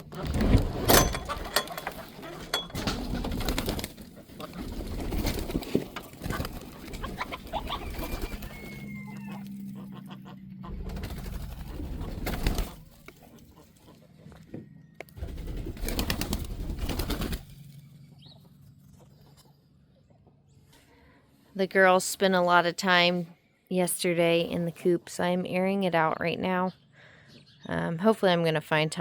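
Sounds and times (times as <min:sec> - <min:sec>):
knocks and rustling: 0:00.0 - 0:07.0
birds cooing: 0:00.9 - 0:18.4.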